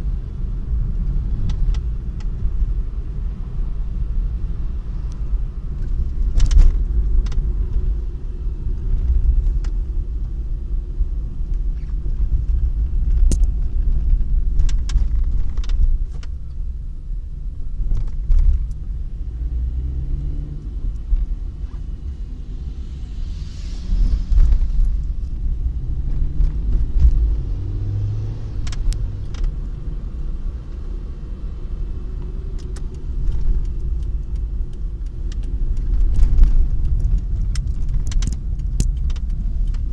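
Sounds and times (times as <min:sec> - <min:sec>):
car engine low rumble: 0:00.0 - 0:39.9
sharp clicks and knocks: 0:32.5 - 0:39.9.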